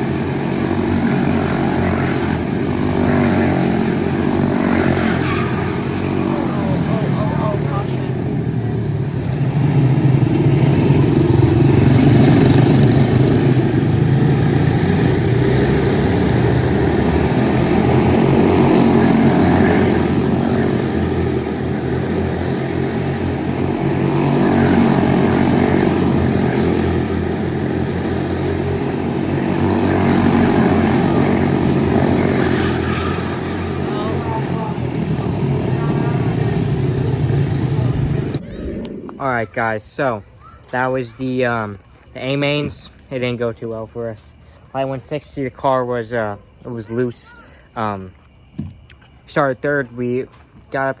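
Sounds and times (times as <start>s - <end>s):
small race car engines: 0.0s - 39.6s.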